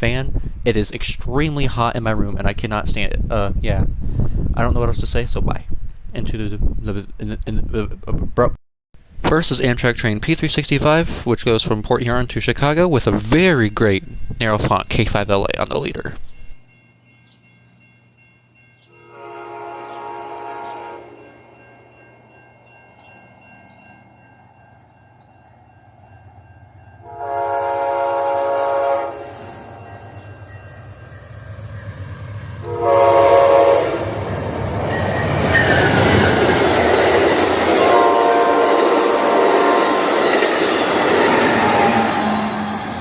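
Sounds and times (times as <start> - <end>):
train air horn blasts: 18.9 - 21.4, 27.0 - 30.2, 32.6 - 34.4, 35.5 - 40.4, 41.2 - 43.0
train wheels and engine rushing: 29.1 - 43.0.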